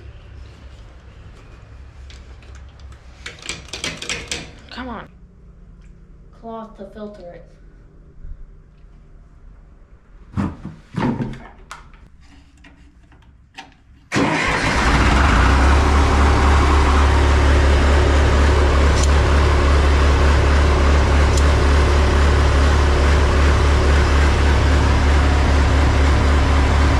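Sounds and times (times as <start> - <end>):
tractor engine running: 14.1 - 26.9.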